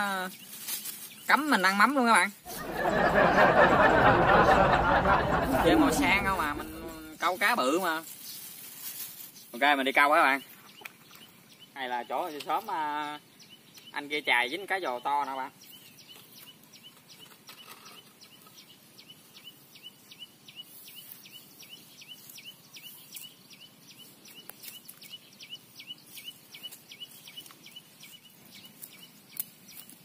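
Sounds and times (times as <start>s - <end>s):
outdoor background hiss: 0.0s - 29.8s
bird chirping: 9.3s - 30.0s.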